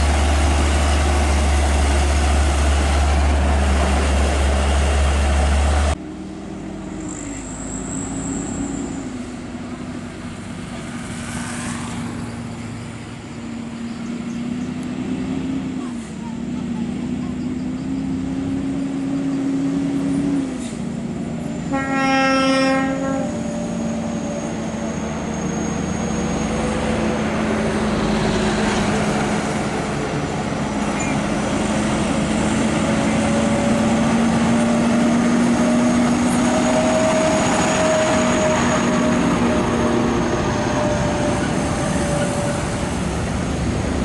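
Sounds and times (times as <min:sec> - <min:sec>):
road noise: 0:00.0 - 0:44.0
truck engines droning: 0:00.0 - 0:44.0
truck horn blast: 0:21.6 - 0:23.6.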